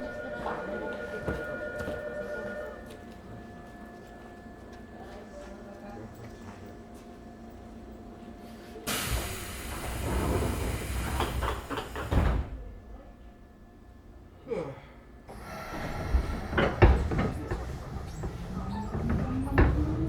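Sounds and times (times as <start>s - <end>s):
falling hiss of air: 8.9s - 11.2s
train door knocks and clatter: 9.0s - 12.8s, 15.4s - 20.0s
train motor whine: 15.3s - 20.0s.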